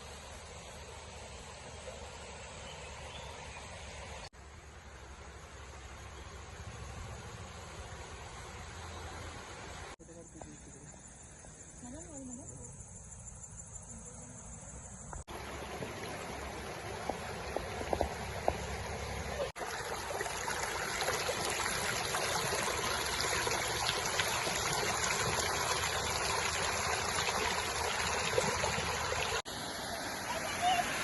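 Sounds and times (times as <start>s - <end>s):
running water flowing: 15.2s - 31.0s.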